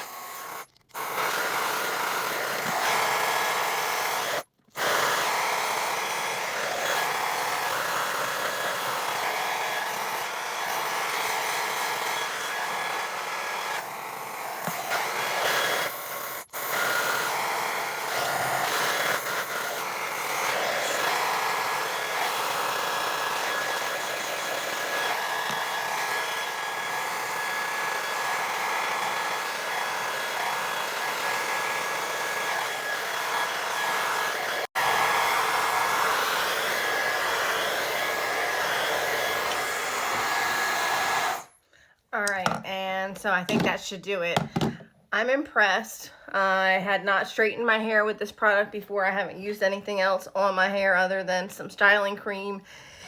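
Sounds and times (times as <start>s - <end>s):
hair dryer blowing with whine: 0.0s - 41.6s.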